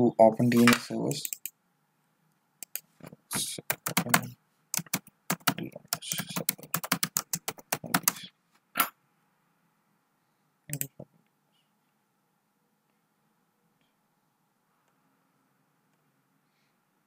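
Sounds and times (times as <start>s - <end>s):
computer keyboard typing: 0.5s - 1.5s, 2.6s - 2.8s, 3.6s - 8.3s.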